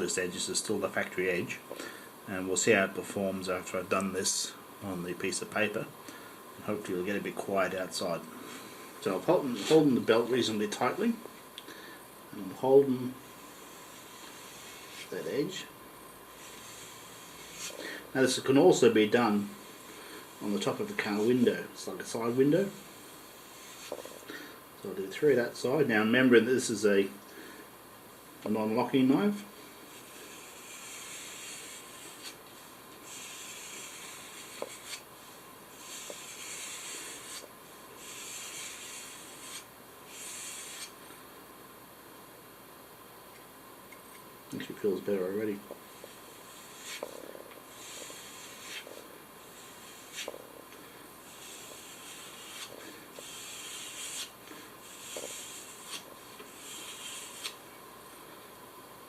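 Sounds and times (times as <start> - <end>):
knife stropping on leather belt: 9.4 - 10.1, 30.0 - 35.1, 35.8 - 41.0, 46.0 - 50.4, 51.3 - 57.6.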